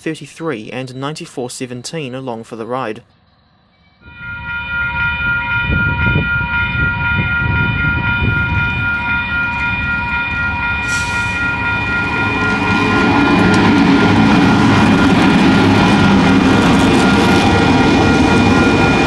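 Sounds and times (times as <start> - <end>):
train horn long blast: 4.0 - 19.0
freight train rumble: 4.1 - 19.0
short hiss: 10.8 - 11.4.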